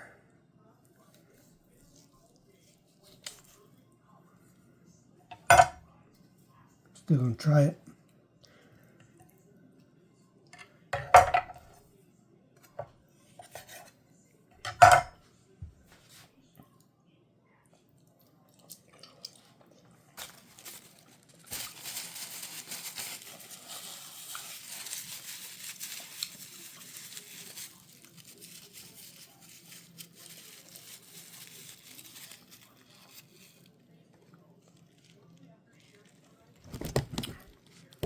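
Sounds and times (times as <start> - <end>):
crinkling and tearing: 20.2 - 33.8, 34.6 - 38.0.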